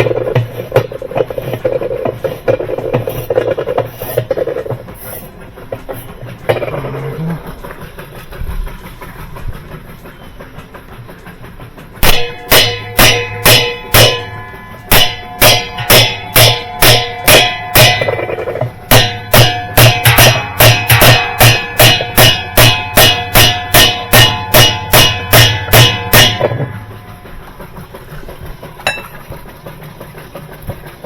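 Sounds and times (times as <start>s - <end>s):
hammer striking metal: 12.0s - 26.8s, 28.9s - 29.2s.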